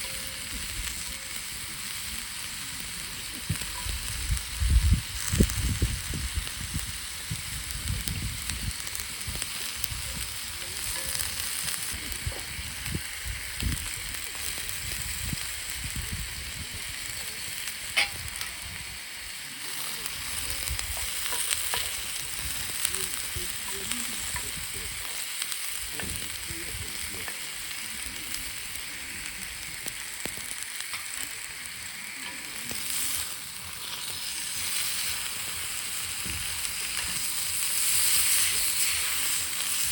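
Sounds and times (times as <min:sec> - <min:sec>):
campfire crackles: 0:00.0 - 0:39.9
steak sizzling in a skillet: 0:00.0 - 0:39.9.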